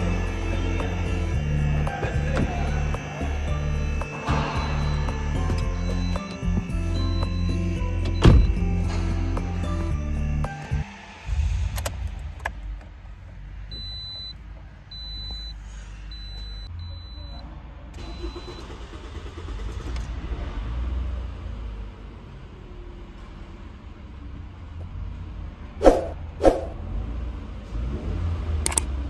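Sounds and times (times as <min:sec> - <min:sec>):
car engine cranking: 0:00.0 - 0:09.7, 0:18.0 - 0:21.2.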